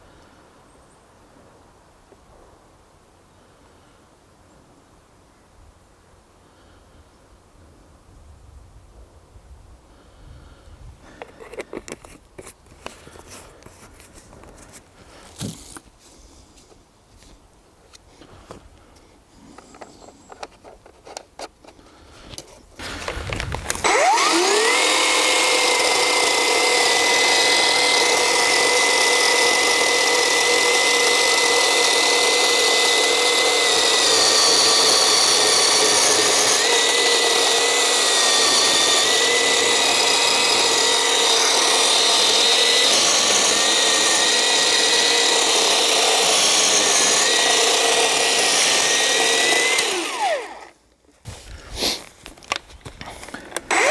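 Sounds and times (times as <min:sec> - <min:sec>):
electric chainsaw motor whining: 0:22.8 - 0:50.8, 0:53.2 - 0:53.9.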